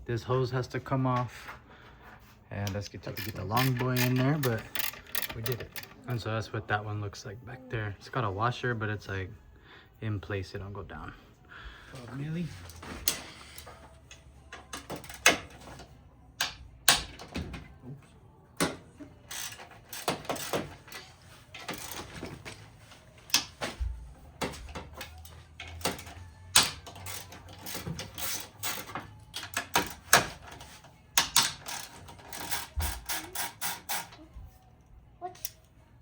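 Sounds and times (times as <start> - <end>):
ratchet wrench clicking: 3.2 - 6.0, 19.3 - 20.6, 25.1 - 30.1, 31.2 - 34.1.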